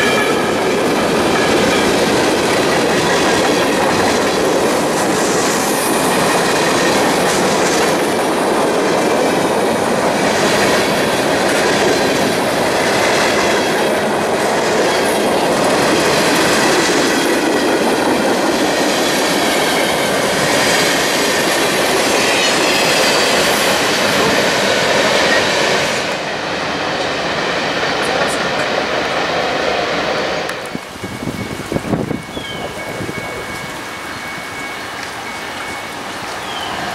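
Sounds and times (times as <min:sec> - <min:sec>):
freight train wheels clattering: 0:00.0 - 0:36.9.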